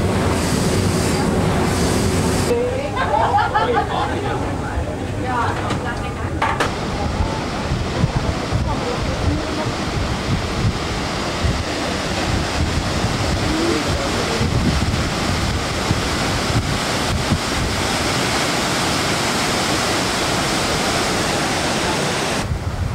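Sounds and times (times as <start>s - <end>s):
rushing water: 0.0s - 22.9s
wind buffeting microphone: 4.6s - 21.3s, 22.4s - 22.9s.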